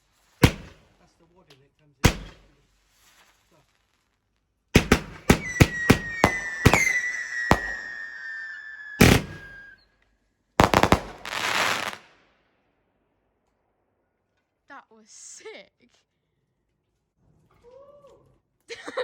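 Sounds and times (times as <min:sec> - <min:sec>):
firework bangs: 0:00.1 - 0:01.1, 0:02.0 - 0:03.4, 0:04.8 - 0:09.8, 0:10.6 - 0:12.2
crackling hissing firework burst: 0:04.8 - 0:09.8, 0:10.6 - 0:12.1
shrill firework whistle: 0:05.0 - 0:10.0.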